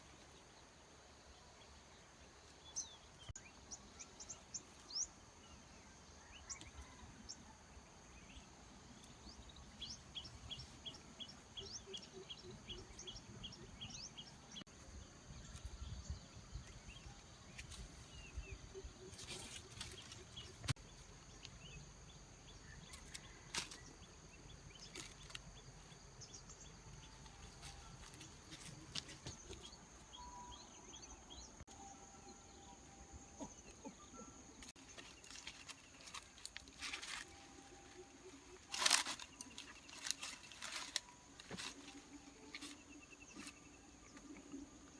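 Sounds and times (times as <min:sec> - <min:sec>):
faint bird chirps: 0:02.7 - 0:07.6.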